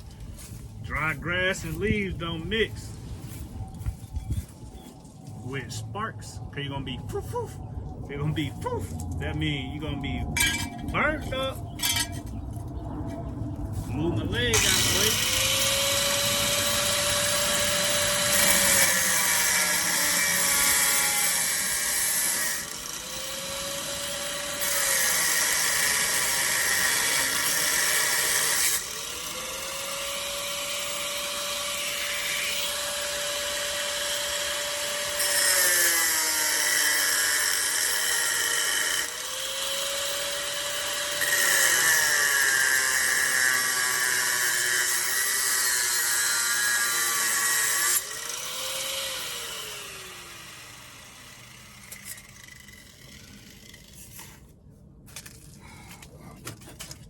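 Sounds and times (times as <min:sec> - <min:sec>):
grinding metal: 0:09.2 - 0:54.3
angle grinder motor whine: 0:13.2 - 0:54.2.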